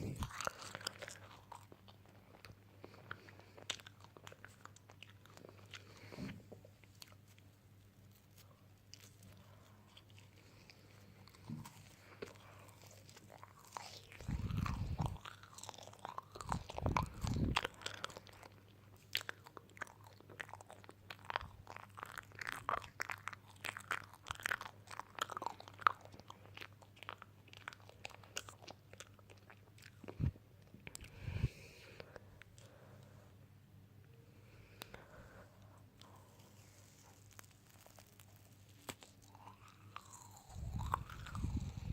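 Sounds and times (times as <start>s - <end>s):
crisp crunching and chewing: 0.0s - 32.8s, 34.6s - 41.9s.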